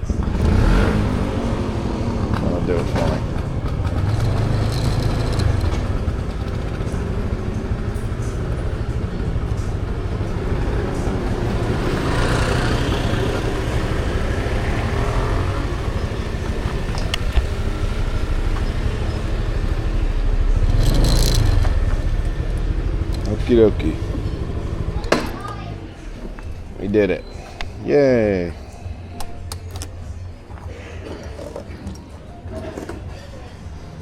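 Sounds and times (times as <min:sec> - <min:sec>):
motor scooter engine running: 0:00.0 - 0:26.8
street traffic: 0:00.0 - 0:34.0.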